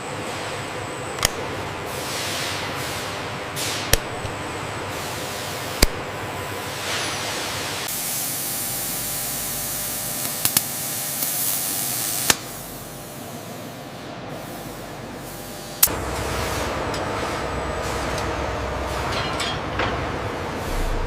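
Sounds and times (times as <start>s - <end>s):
machine shop background noise: 0.0s - 21.0s
low rumble: 20.6s - 21.0s.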